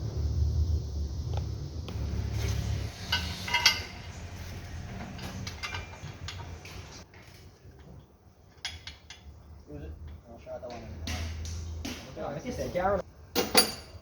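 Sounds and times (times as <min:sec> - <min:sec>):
low rumble: 0:00.0 - 0:05.0
metal parts clinking: 0:05.1 - 0:06.5.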